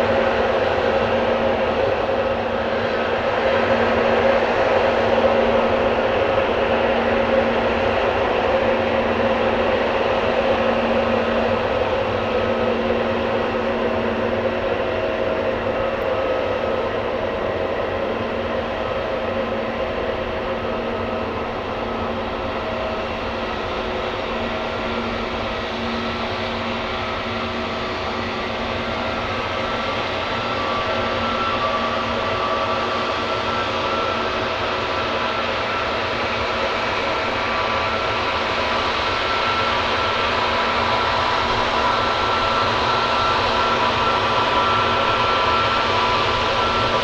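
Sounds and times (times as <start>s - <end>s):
jet engines running: 0.0s - 47.0s.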